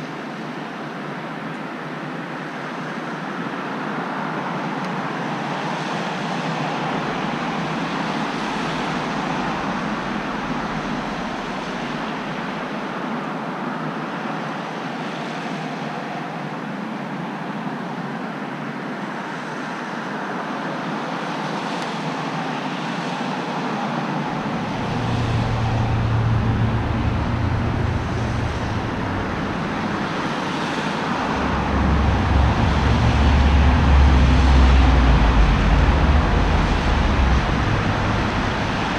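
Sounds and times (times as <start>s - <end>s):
road traffic noise: 0.0s - 38.9s
deep low rumble: 24.3s - 38.9s.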